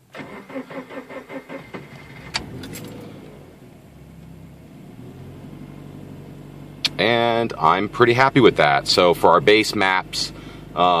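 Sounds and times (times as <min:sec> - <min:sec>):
car engine idling: 0:00.0 - 0:11.0
starter motor cranking: 0:00.1 - 0:03.3.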